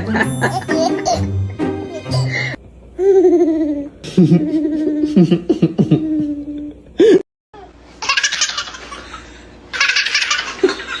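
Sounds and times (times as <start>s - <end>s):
baby laughing: 0.4s - 2.2s, 3.0s - 6.7s, 8.0s - 11.0s.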